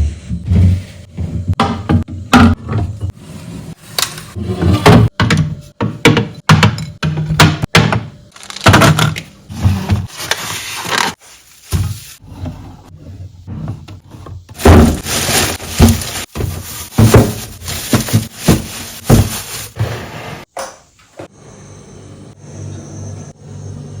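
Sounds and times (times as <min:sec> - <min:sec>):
household items knocking and clattering: 0:01.2 - 0:03.1, 0:04.8 - 0:10.4, 0:13.7 - 0:19.9
scraping or rustling: 0:14.6 - 0:20.5.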